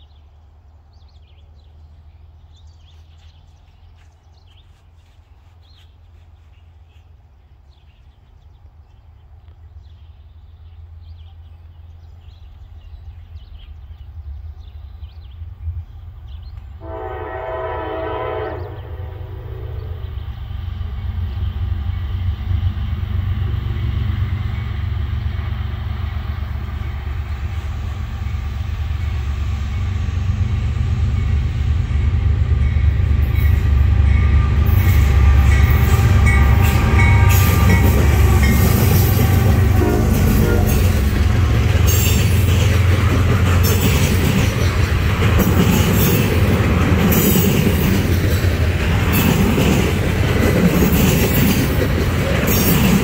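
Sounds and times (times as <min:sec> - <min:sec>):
locomotive rumble: 0:10.0 - 0:53.0
train horn blast: 0:16.8 - 0:20.2, 0:32.0 - 0:42.2
train wheels clattering over rails: 0:32.0 - 0:53.0.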